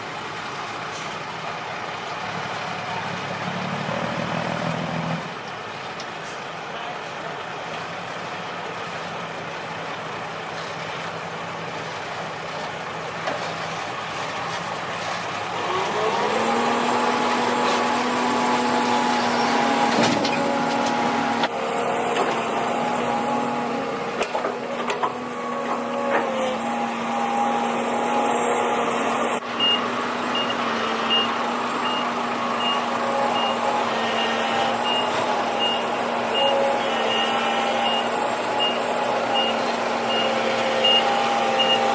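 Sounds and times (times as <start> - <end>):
diesel engine revving: 0.0 - 41.9
reversing alarm beeping: 29.6 - 41.9.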